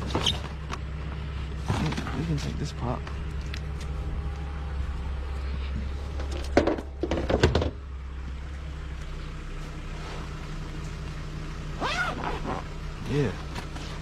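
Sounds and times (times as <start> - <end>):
steady low hum: 0.0 - 14.0
loud knocks and clatter: 6.5 - 7.8.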